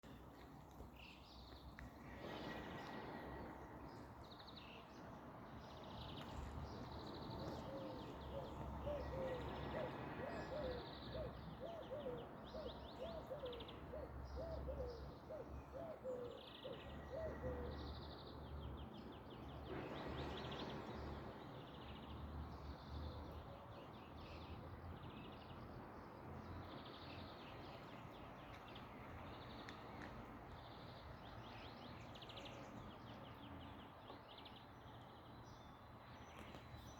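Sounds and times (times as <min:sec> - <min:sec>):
outdoor background noise: 0:00.0 - 0:36.9
small birds chirping: 0:00.0 - 0:36.9
lower repeated bird calls: 0:01.8 - 0:04.9, 0:06.2 - 0:18.3.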